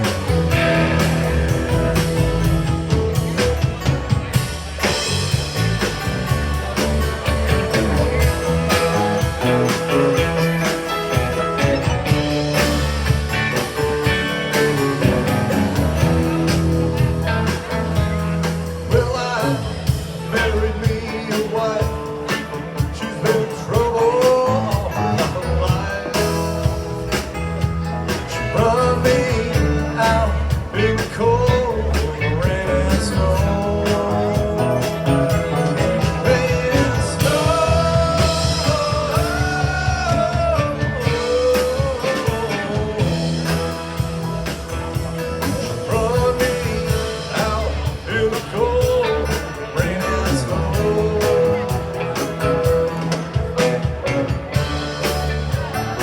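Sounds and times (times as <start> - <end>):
rock band playing: 0.0 - 56.0
person singing lead vocal: 18.8 - 26.8, 28.2 - 44.2, 45.4 - 54.4.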